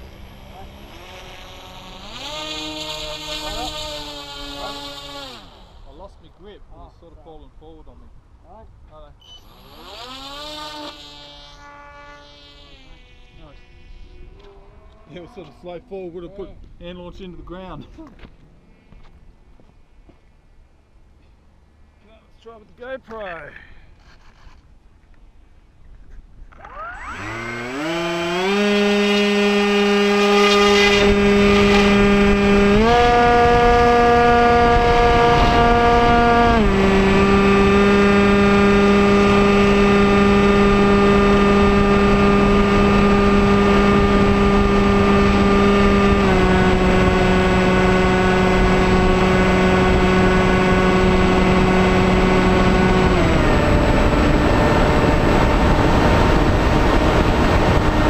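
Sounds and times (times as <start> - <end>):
model plane motor whining: 0.0 - 6.1, 9.2 - 15.8, 26.5 - 58.0.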